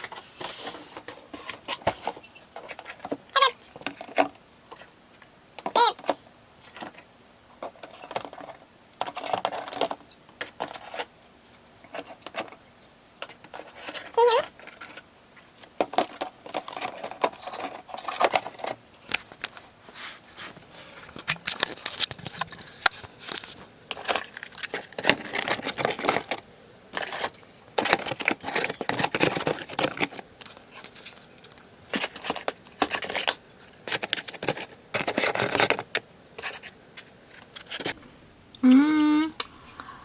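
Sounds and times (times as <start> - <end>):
packaging crinkling and tearing: 21.0 - 26.3.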